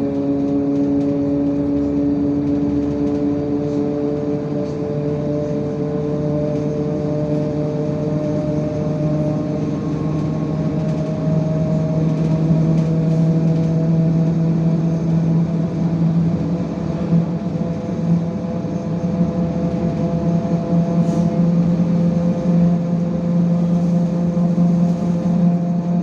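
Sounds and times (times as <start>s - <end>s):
bus engine humming: 0.0s - 26.0s.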